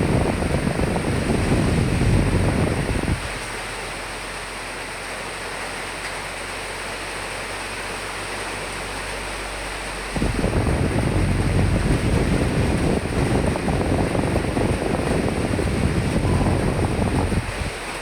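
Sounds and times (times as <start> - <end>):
wind gust buffeting: 0.0 - 3.4, 10.0 - 18.0
steady rain hiss: 0.0 - 18.0.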